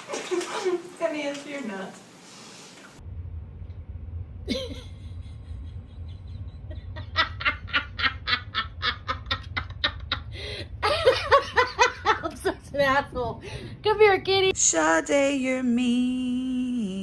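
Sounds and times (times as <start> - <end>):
low steady hum: 3.0 - 17.0
person laughing: 4.4 - 12.6.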